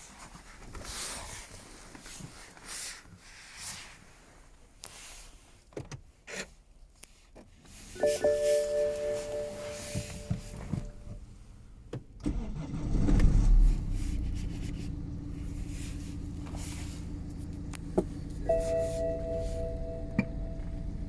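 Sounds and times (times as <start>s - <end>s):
electronic chime tone: 8.0s - 11.2s, 18.4s - 21.0s
diesel engine starting and idling: 8.0s - 21.0s.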